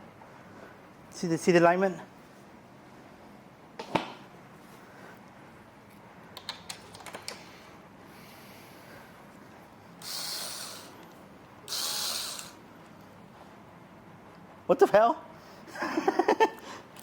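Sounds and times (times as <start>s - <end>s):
short hissing rushes: 10.0s - 11.0s, 11.7s - 12.6s.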